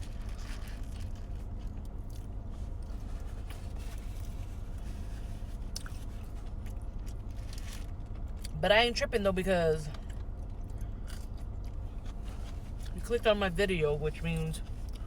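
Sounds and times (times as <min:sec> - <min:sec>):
person chewing food: 0:00.0 - 0:08.5, 0:09.9 - 0:13.0
steady low hum: 0:00.0 - 0:15.0.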